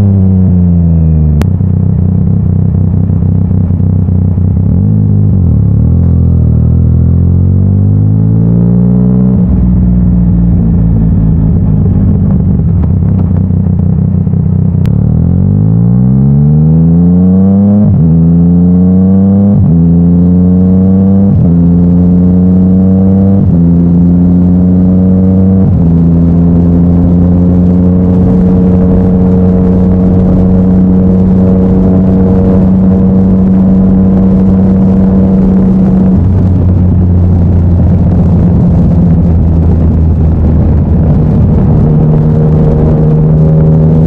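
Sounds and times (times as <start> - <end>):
motorcycle engine accelerating: 0.0 - 44.0.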